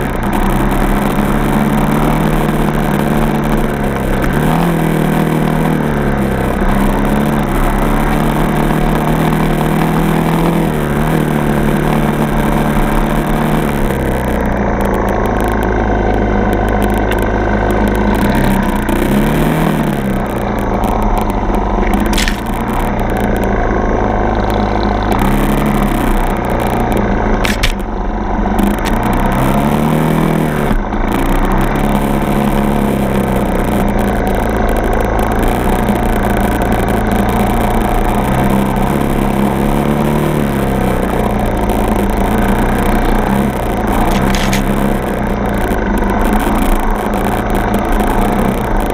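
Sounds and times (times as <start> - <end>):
dirt bike engine revving: 0.0 - 48.9
short sharp clicks: 19.9 - 23.5, 27.4 - 27.9, 42.8 - 48.9.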